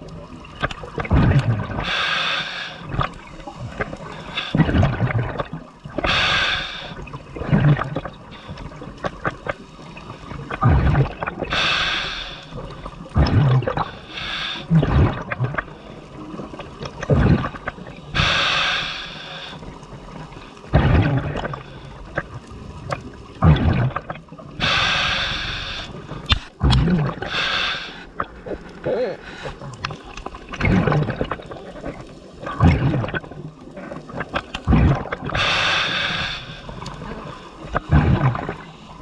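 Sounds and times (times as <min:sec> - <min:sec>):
exhaled bubbles gurgling: 0:00.0 - 0:39.0
regulator hissing inhales: 0:01.8 - 0:02.8, 0:06.1 - 0:07.0, 0:11.5 - 0:12.7, 0:13.8 - 0:14.7, 0:18.1 - 0:19.8, 0:24.6 - 0:26.5, 0:27.3 - 0:28.1, 0:35.4 - 0:37.6.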